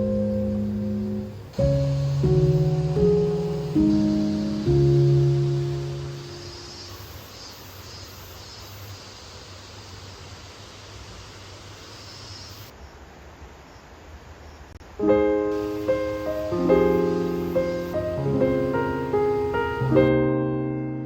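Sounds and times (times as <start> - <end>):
gentle piano music: 0.0 - 7.3, 14.8 - 21.0
faint high chirping: 0.0 - 13.0, 15.5 - 20.1
ambient background noise: 0.0 - 20.1.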